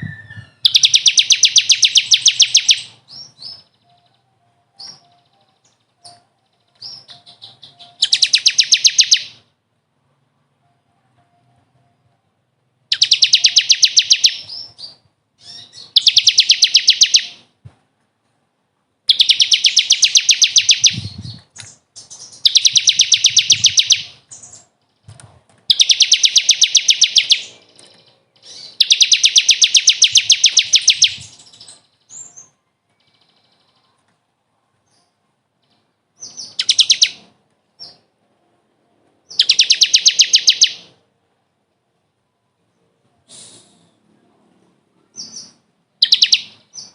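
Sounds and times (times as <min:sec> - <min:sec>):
songbird high trill: 0:00.0 - 0:04.2, 0:06.8 - 0:09.4, 0:12.9 - 0:17.4, 0:19.1 - 0:24.6, 0:25.7 - 0:33.8, 0:36.2 - 0:38.0, 0:39.3 - 0:40.9, 0:45.2 - 0:46.9.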